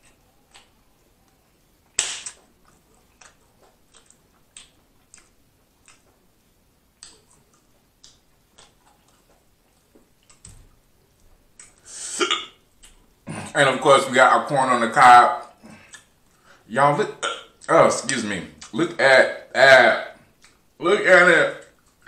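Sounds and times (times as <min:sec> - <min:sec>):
wet chewing clicks: 0:00.0 - 0:13.2, 0:15.5 - 0:16.6, 0:18.6 - 0:18.8, 0:20.3 - 0:20.8, 0:21.6 - 0:22.0.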